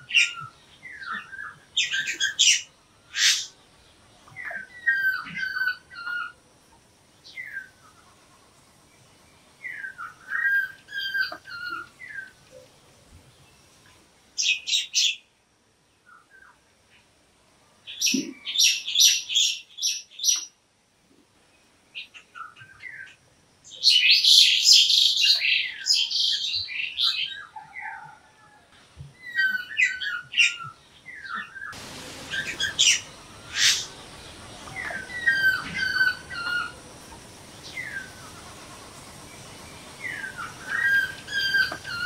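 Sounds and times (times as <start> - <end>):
birds chirping and calling: 0.0 - 3.6, 4.2 - 6.4, 9.6 - 12.5, 14.4 - 15.3, 17.9 - 20.6, 22.0 - 28.2, 29.1 - 42.0
background hiss: 0.0 - 42.0.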